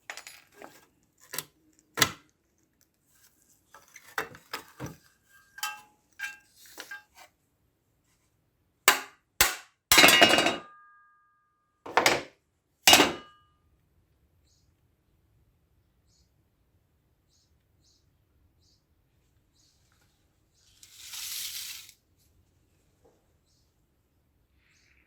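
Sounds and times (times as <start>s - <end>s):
metallic ring: 5.6s - 6.4s, 12.9s - 13.4s
loud sharp metal knocks: 8.9s - 10.7s
metal clatter: 9.9s - 10.7s, 12.9s - 13.3s.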